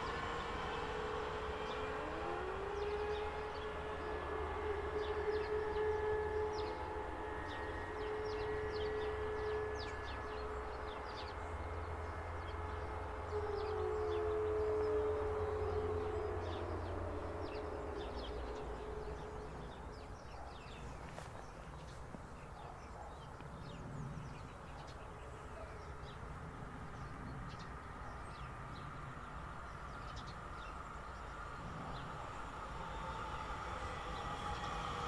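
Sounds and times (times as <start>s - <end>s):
approaching electric train whine: 0.0s - 35.0s
small birds chirping: 16.0s - 32.8s.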